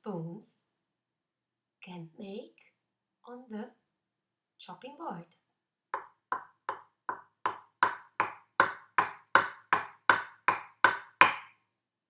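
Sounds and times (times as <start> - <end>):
wooden spoons knocking on board: 6.0 - 11.6.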